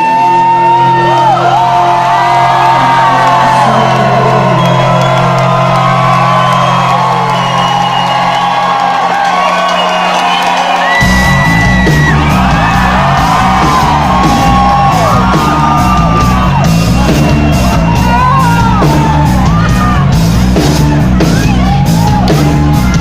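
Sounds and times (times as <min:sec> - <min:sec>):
loud music with pounding beat: 0:10.7 - 0:23.0.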